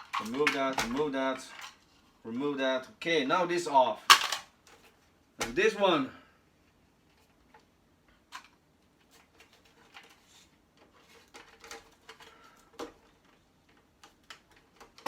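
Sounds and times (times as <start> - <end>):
electronic parts clicking and rattling: 0.0 - 1.9, 4.0 - 5.0, 7.1 - 15.0.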